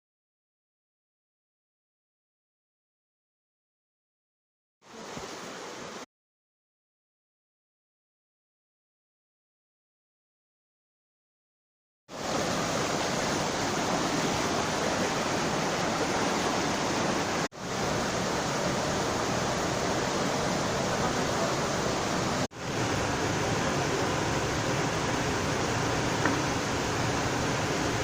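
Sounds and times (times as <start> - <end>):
stream water rushing: 4.9 - 6.0, 12.1 - 28.0.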